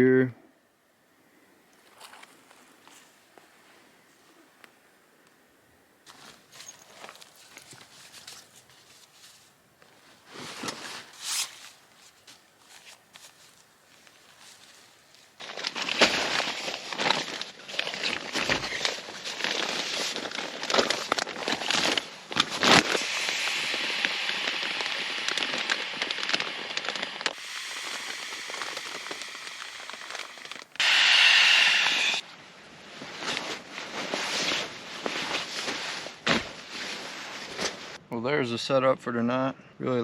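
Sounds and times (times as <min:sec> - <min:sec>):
nylon fabric rustling and crinkling: 0:06.1 - 0:23.8, 0:32.8 - 0:38.0
loud steady hiss: 0:22.6 - 0:32.2.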